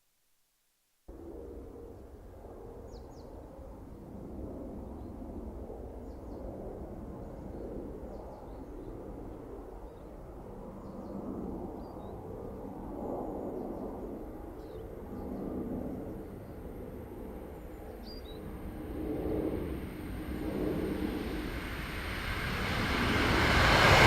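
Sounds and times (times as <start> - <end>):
diesel train rumble: 17.3 - 24.0.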